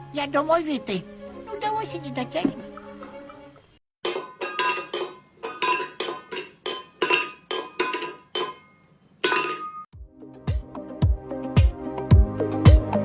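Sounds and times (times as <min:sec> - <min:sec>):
sharp metallic clinks: 0:04.0 - 0:09.9
music with deep beat: 0:10.5 - 0:13.0.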